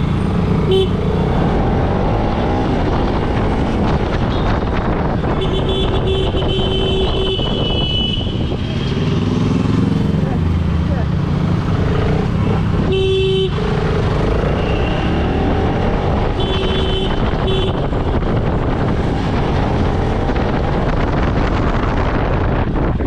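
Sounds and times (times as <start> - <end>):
road and wind noise: 0.0 - 23.0
vehicle horn honking: 0.7 - 1.0, 5.4 - 8.5, 12.8 - 13.6, 16.4 - 17.9.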